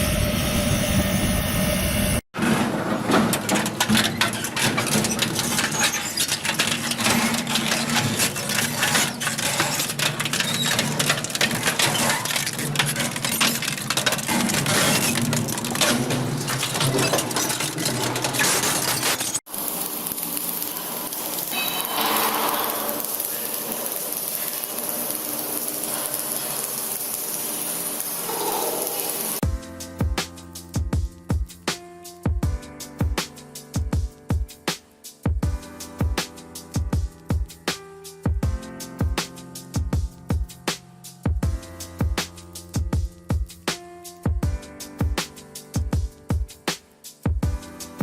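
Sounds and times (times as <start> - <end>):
metal parts clinking and clattering: 3.2 - 19.4.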